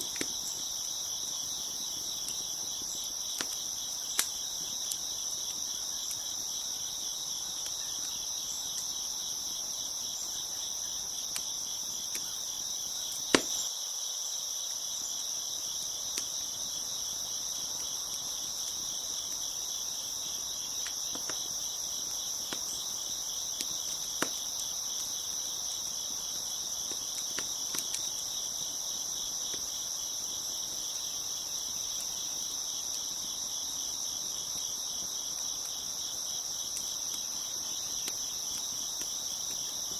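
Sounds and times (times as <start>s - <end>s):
wood fire crackling pops: 0.0s - 9.4s, 13.1s - 13.7s, 20.2s - 25.2s, 26.0s - 28.8s, 31.8s - 39.9s
crickets chirping: 0.0s - 39.9s.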